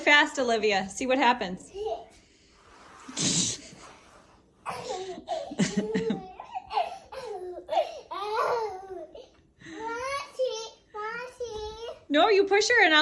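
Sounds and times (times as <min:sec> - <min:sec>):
young child laughing: 0:04.7 - 0:08.7.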